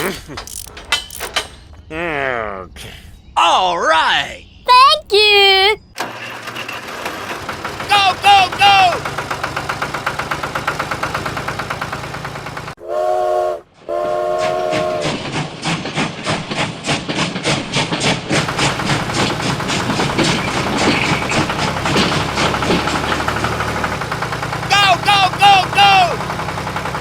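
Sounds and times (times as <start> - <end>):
small engine chugging: 0.0 - 1.7, 7.3 - 12.7, 18.4 - 27.0.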